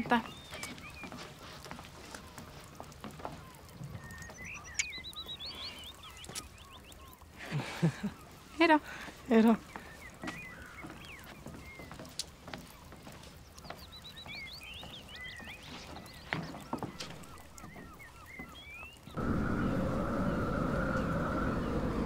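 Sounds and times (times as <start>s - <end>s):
birds chirping: 0.0s - 22.0s
high hum: 19.2s - 22.0s
steady low rumble: 19.2s - 22.0s.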